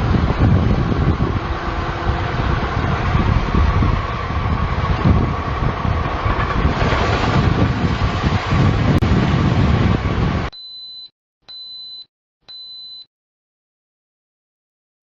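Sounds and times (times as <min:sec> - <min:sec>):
large machine engine rumbling: 0:00.0 - 0:10.5.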